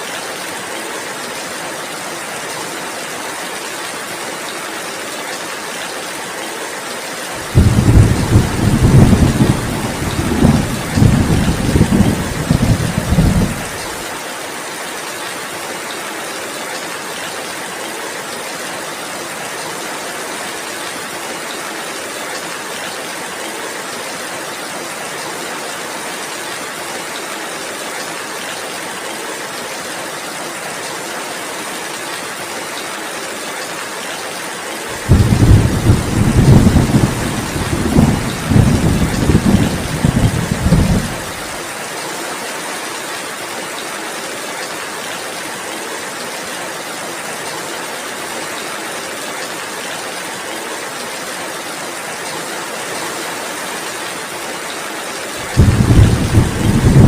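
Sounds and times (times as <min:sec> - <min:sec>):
heavy rain: 0:00.0 - 0:57.0
thunder rumbling: 0:07.4 - 0:13.9, 0:35.0 - 0:41.6, 0:55.4 - 0:57.0.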